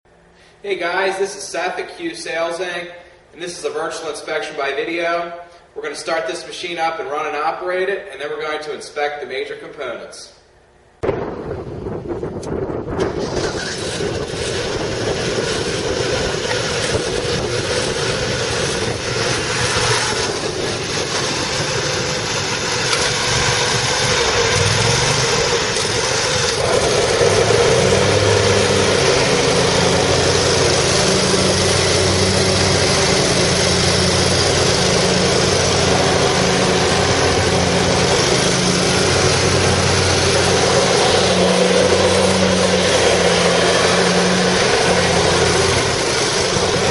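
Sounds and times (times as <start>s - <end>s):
lawn mower engine running: 12.4s - 46.9s.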